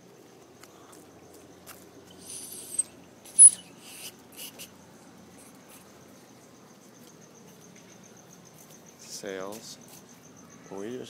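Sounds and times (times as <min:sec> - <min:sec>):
high-pitched squeaks: 0:02.1 - 0:04.6.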